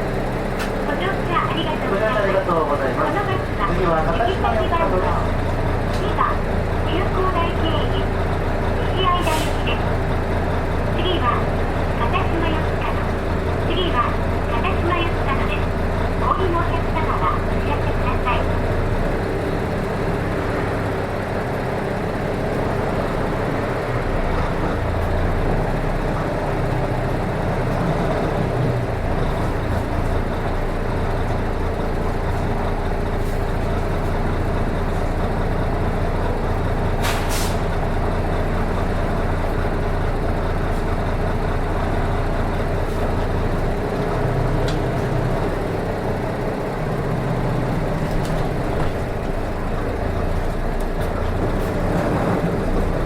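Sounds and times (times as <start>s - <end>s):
bus diesel engine running: 0.0s - 53.0s
air release: 37.0s - 37.7s.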